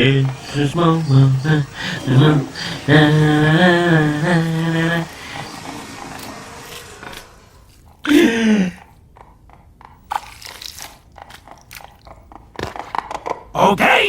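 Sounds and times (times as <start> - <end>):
crunching crisp food: 5.2 - 8.0, 10.1 - 12.3.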